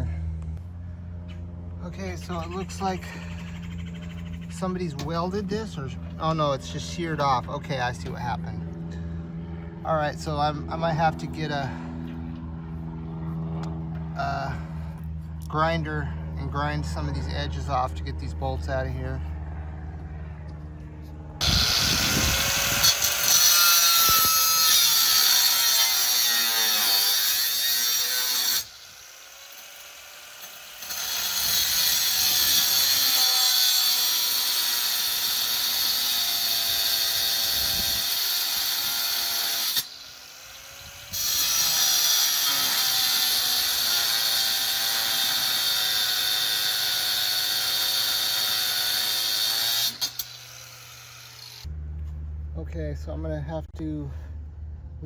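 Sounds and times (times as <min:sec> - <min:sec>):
angle grinder grinding metal: 0:21.4 - 0:51.7.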